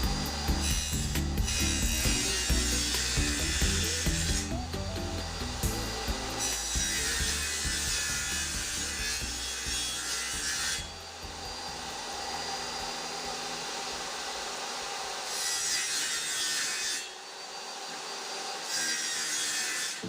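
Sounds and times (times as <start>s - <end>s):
saw cutting wood: 0.0s - 20.0s
saw motor whine: 0.0s - 20.0s.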